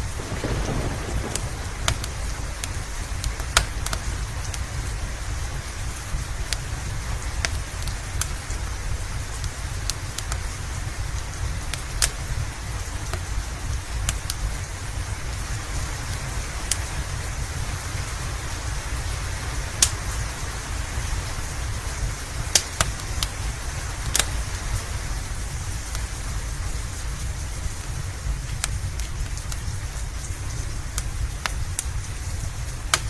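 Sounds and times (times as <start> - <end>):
low rumble: 0.0 - 6.9
steady rain: 0.0 - 33.0
wood fire crackling and popping: 0.0 - 33.0.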